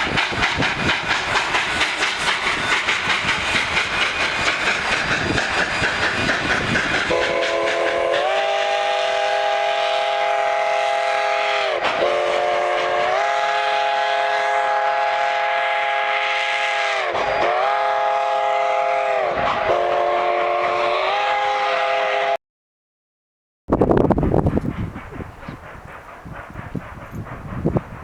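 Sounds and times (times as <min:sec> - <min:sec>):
steam locomotive chuffing: 0:00.0 - 0:22.4, 0:23.7 - 0:28.0
chime steam whistle blasts: 0:07.0 - 0:22.4.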